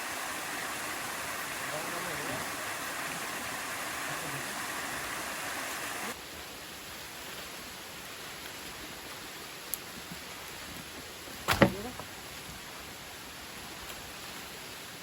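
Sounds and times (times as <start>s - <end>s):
waterfall and stream rushing: 0.0s - 6.9s.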